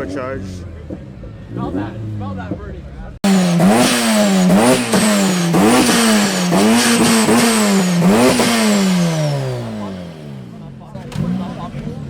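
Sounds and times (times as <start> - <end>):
high engine whine: 3.2 - 11.2
car engine revving hard: 3.2 - 12.0.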